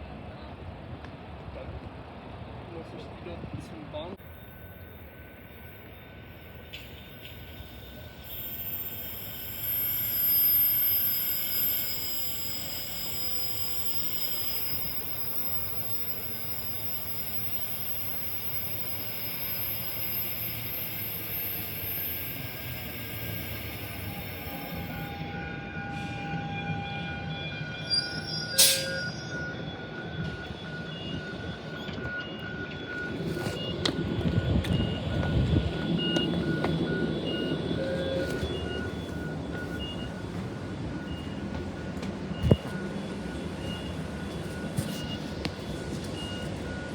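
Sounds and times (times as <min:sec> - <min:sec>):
low train rumble: 0:00.0 - 0:46.9
high-pitched squealing tones: 0:06.7 - 0:25.4.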